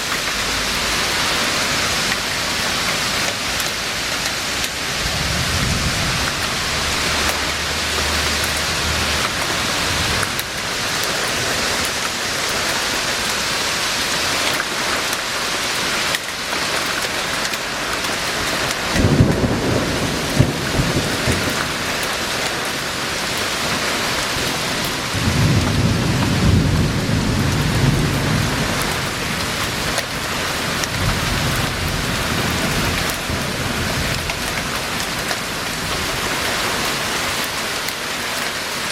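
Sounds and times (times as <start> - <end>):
heavy rain hissing: 0.0 - 38.9
thunder rumbling: 4.0 - 12.4, 18.5 - 36.3.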